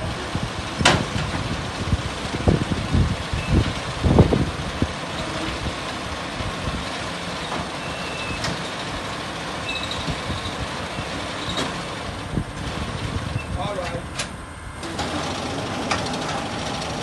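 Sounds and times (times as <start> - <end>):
steady rushing noise: 0.0 - 7.4.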